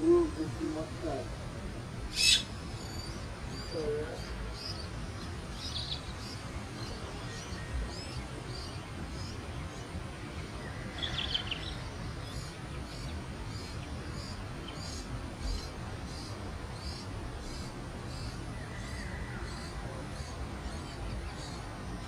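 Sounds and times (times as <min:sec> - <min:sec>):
small bird chirping: 0:02.1 - 0:08.8.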